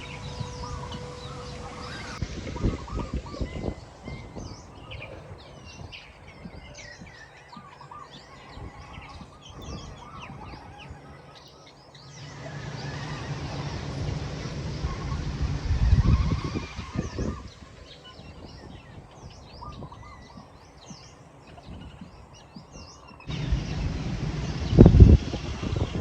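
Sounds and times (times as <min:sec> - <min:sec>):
small birds chirping: 0:00.0 - 0:26.0
low rumble: 0:12.1 - 0:17.8, 0:23.3 - 0:26.0.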